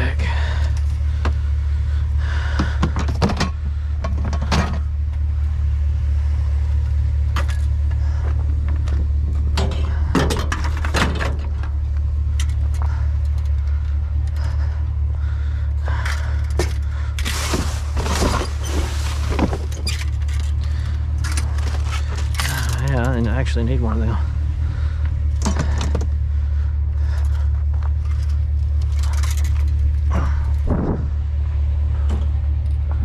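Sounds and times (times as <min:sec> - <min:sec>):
steady low rumble: 0:00.0 - 0:33.0
scrap clattering and knocking: 0:16.5 - 0:23.0.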